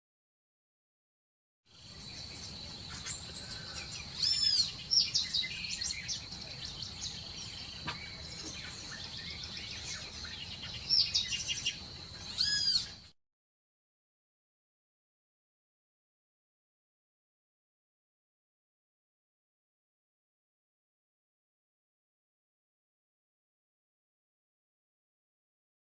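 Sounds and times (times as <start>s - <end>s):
birds chirping and calling: 1.8s - 13.1s.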